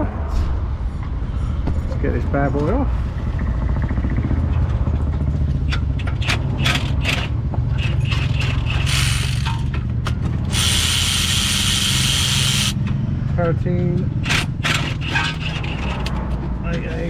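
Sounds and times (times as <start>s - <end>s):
socket ratchet clicking: 5.8s - 9.7s, 10.5s - 12.8s
power tool hissing: 8.1s - 9.6s, 10.5s - 12.8s.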